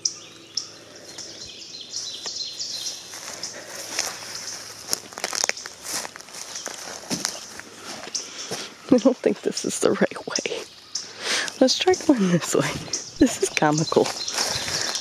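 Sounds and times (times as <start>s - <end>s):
songbirds chirping: 0.0s - 15.0s
footsteps on leaf litter: 2.0s - 9.8s, 11.4s - 15.0s.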